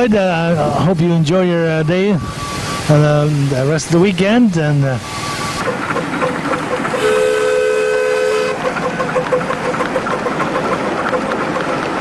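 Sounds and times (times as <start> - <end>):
steam hissing: 0.2 - 12.0
steam whistle blast: 2.1 - 10.4.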